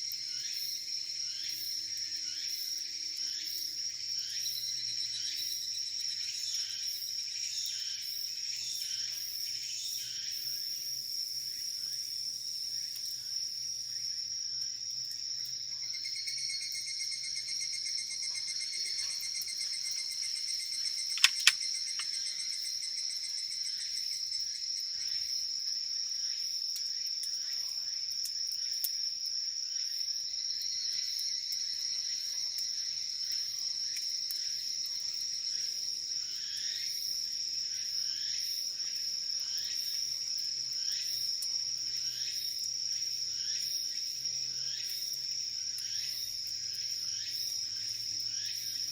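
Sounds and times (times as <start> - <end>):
insects chirring: 0.0 - 48.9
sharp clicks: 21.1 - 22.1.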